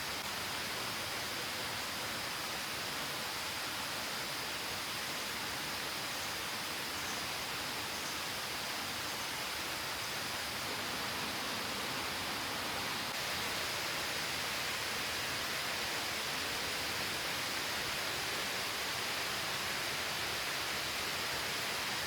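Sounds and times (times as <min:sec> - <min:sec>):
falling water hissing: 0:09.6 - 0:22.0.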